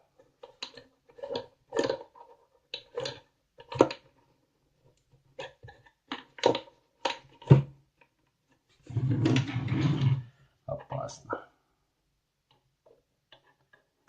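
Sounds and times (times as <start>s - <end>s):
small parts clicking and knocking: 0.1s - 4.3s, 4.9s - 8.6s, 12.5s - 14.0s
rustling and scraping: 8.7s - 10.4s.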